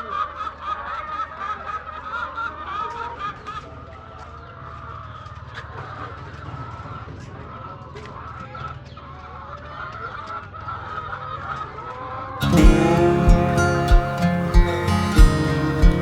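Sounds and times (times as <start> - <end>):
steady low hum: 12.4 - 16.0.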